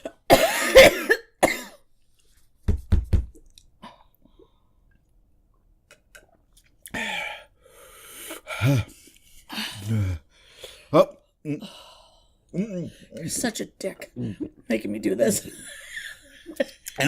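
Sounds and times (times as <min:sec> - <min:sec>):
person coughing: 0:00.0 - 0:01.8.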